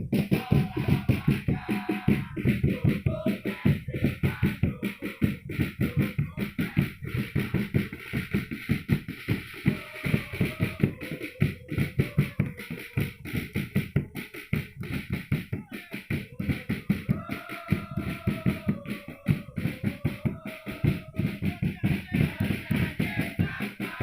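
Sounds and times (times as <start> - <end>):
crowd singing a chant: 0.0 - 24.0
drums beating fast rhythm: 0.0 - 24.0.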